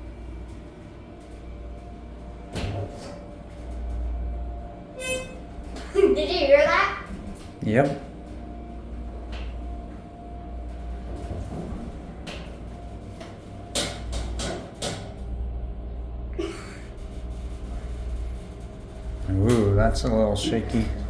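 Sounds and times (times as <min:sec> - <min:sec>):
elevator low hum: 0:00.0 - 0:21.0
elevator clicks and knocks: 0:05.6 - 0:08.5, 0:10.6 - 0:15.4, 0:17.1 - 0:21.0.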